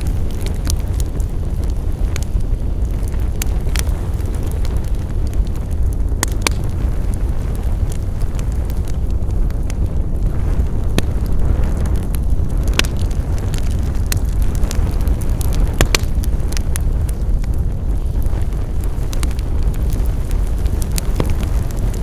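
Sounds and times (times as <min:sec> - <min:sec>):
rumble of fire flames: 0:00.0 - 0:22.0
wood fire crackling and popping: 0:00.0 - 0:22.0.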